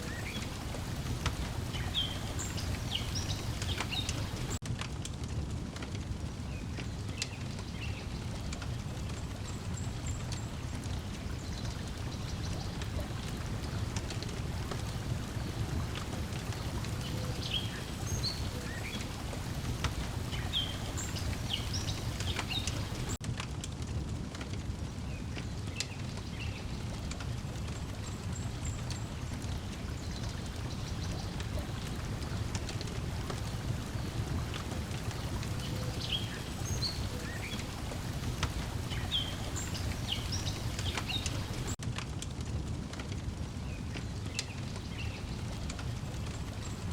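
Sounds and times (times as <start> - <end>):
birds chirping: 0.0 - 4.6, 11.3 - 23.2, 28.6 - 41.8
water lapping: 0.0 - 4.6, 9.2 - 23.2, 27.0 - 41.8
wood fire crackling: 0.0 - 46.9.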